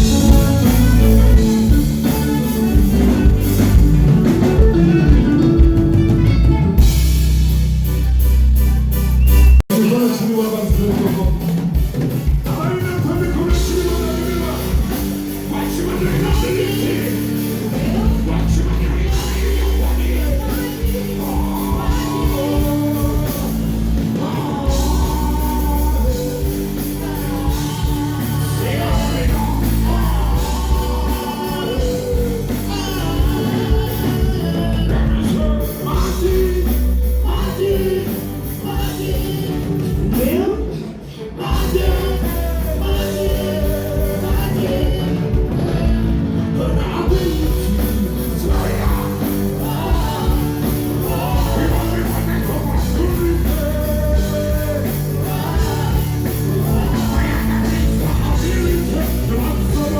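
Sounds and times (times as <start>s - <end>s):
person singing: 0.0s - 7.3s, 9.7s - 59.9s
heavy bass line: 0.0s - 9.7s, 10.6s - 40.5s, 41.4s - 59.9s
loud music over sound system: 0.0s - 59.9s.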